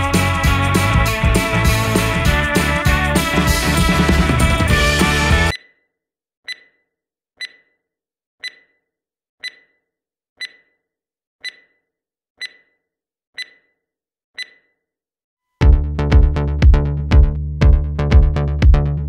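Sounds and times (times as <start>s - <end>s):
short electronic beeps: 7.4s - 7.7s, 8.4s - 8.8s, 9.4s - 9.8s, 10.4s - 10.8s, 11.4s - 11.8s, 12.4s - 12.8s, 13.4s - 13.7s, 14.4s - 14.7s.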